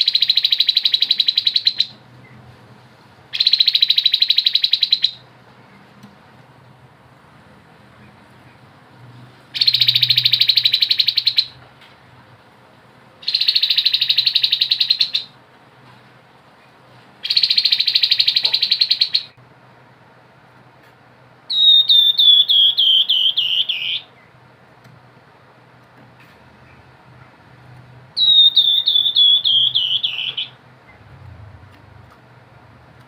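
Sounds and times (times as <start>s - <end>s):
bird notes falling in pitch: 28.2s - 30.6s.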